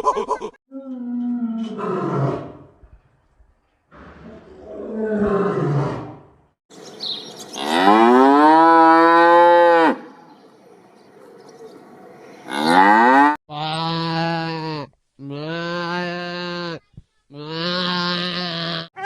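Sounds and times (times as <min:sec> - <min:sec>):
cow mooing: 0:07.6 - 0:10.1, 0:12.5 - 0:14.7.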